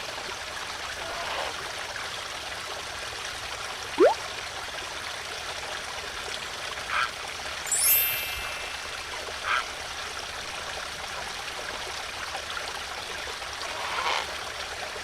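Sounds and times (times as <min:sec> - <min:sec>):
stream of running water: 0:00.0 - 0:15.0.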